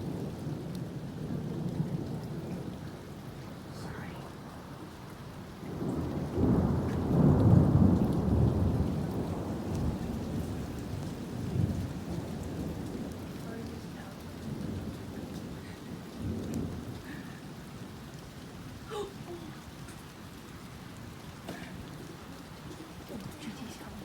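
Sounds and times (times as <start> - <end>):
steady rain: 0.0 - 24.0
thunder rumbling: 0.0 - 24.0.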